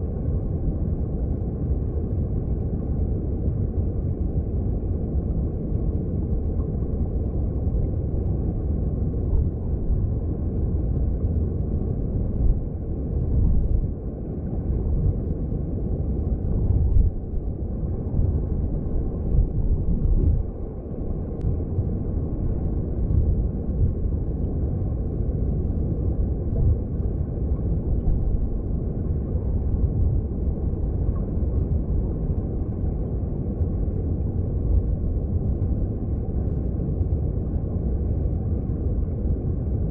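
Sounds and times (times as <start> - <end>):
muffled underwater stream rush: 0.0 - 39.9.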